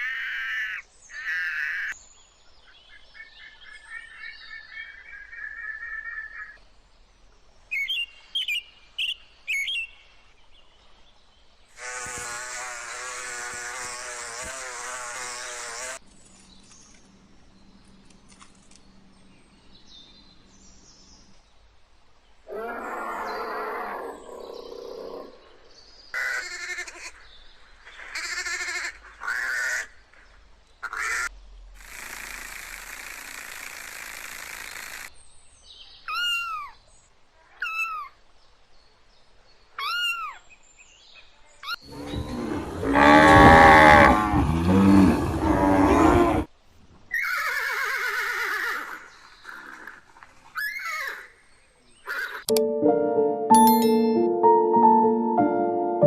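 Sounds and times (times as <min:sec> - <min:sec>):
animal calls: 0:22.5 - 0:25.6, 0:41.6 - 0:46.5
deep animal roar: 0:22.5 - 0:25.6, 0:41.8 - 0:46.5.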